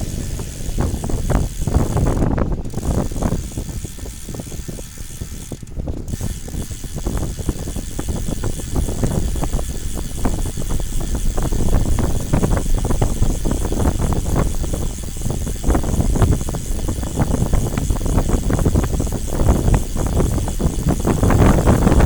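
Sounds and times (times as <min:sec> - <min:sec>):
bike rattling and clicking: 0:00.0 - 0:22.0
wind buffeting microphone: 0:00.0 - 0:22.0.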